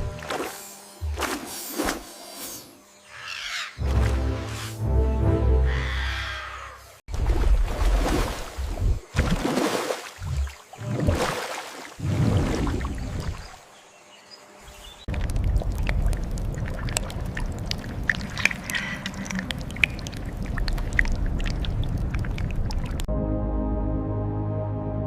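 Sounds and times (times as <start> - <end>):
water splashing and sloshing: 0.0 - 2.2, 3.8 - 4.9, 7.1 - 13.7, 15.0 - 23.1
soft ambient music: 3.8 - 6.7, 23.1 - 25.0.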